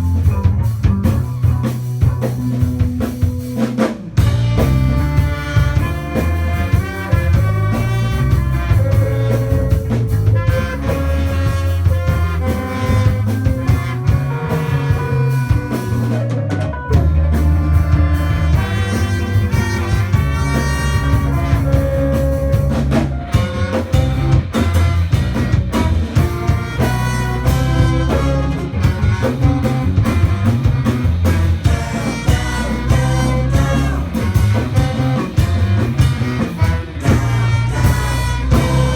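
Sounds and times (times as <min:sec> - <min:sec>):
drum kit: 0:00.0 - 0:38.9
electric bass: 0:00.0 - 0:38.9
guitar: 0:00.0 - 0:38.9
horn section playing melody: 0:04.2 - 0:38.9
synthesizer: 0:04.6 - 0:26.2.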